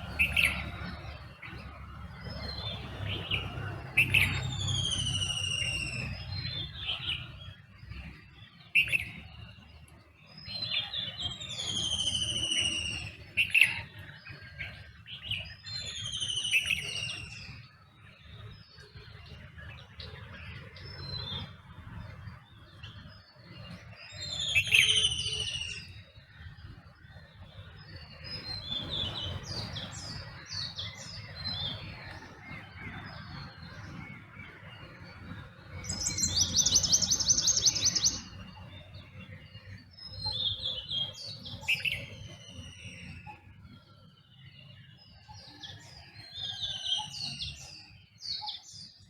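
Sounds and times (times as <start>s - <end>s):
birds chirping and whistling: 0.0s - 49.0s
bird trilling: 35.8s - 38.6s.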